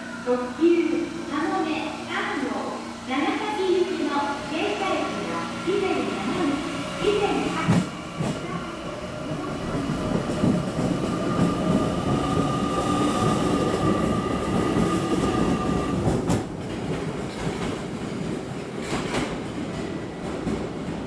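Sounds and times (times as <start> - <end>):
train whine: 0.0 - 16.6.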